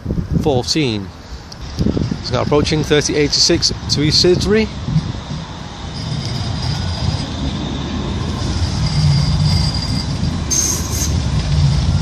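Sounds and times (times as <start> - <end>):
tram rumbling: 0.0 - 12.0
high wheel squeal: 4.7 - 12.0.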